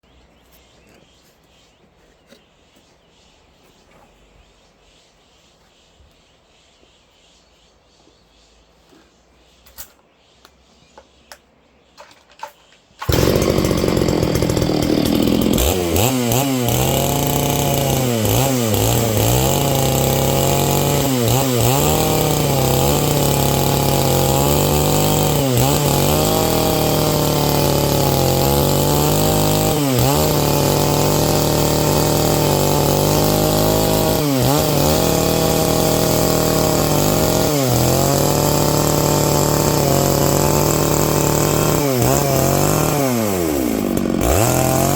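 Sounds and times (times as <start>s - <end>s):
chainsaw cutting log: 13.0s - 44.9s.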